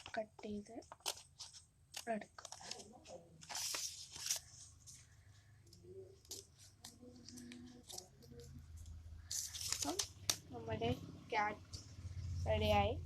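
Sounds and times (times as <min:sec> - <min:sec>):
paper rustling: 0:00.9 - 0:05.5, 0:06.2 - 0:10.4
scissors cutting paper: 0:06.2 - 0:10.4.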